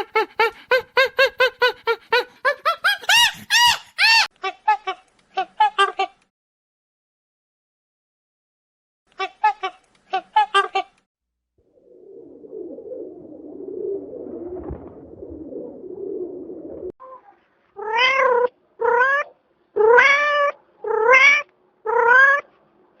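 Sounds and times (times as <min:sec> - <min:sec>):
low rough rumbling: 0:11.6 - 0:17.0
cat meowing: 0:17.8 - 0:22.5.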